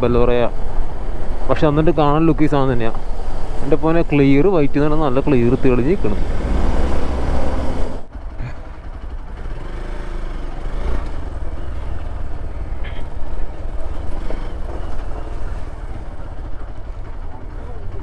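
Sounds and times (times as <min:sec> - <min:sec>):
motorcycle engine running: 0:00.5 - 0:18.0.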